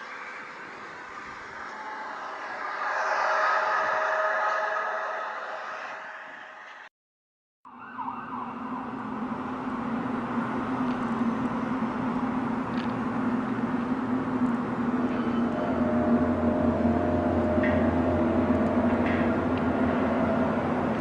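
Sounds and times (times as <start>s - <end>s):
several steady tones: 0.4s - 6.9s, 14.4s - 21.0s
low droning hum with rumble: 9.6s - 21.0s.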